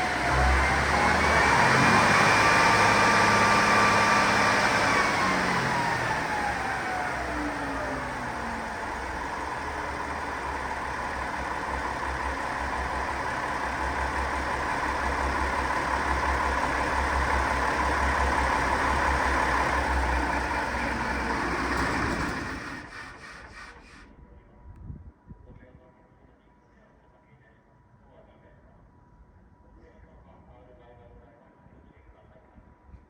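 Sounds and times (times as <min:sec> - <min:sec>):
diesel railcar engine running: 0:00.0 - 0:24.2.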